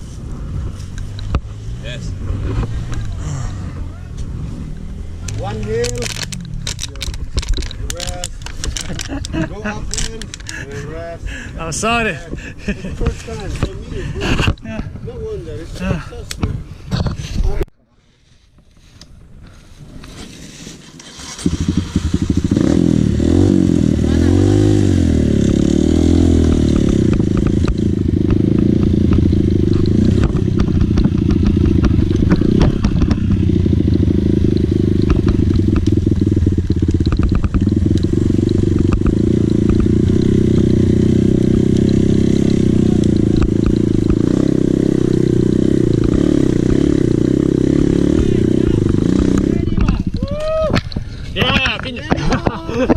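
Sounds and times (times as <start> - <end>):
dirt bike engine revving: 0.5 - 10.8, 21.0 - 50.0
rattles and knocks: 34.4 - 40.6.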